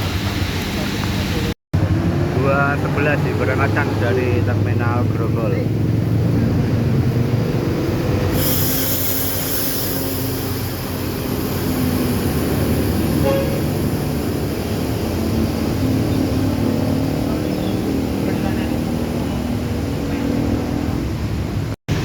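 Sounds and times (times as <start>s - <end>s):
bus diesel engine running: 0.0s - 22.0s
high hiss: 8.2s - 16.2s.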